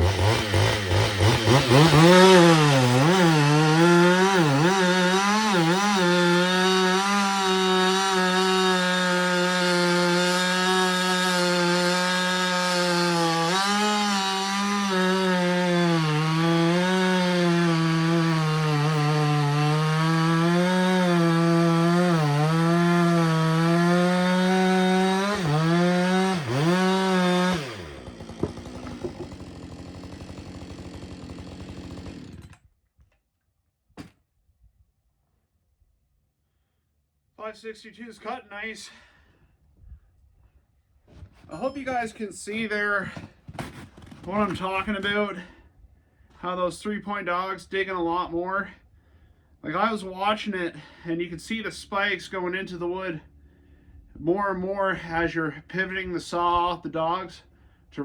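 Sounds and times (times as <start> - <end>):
chainsaw cutting wood: 0.0 - 33.1, 34.0 - 34.2, 43.0 - 45.6.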